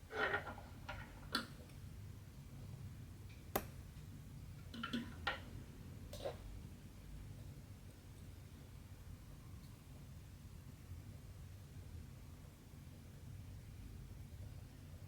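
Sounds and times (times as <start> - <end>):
low room hum: 0.0 - 15.0
small sharp clicks and taps: 3.5 - 3.8.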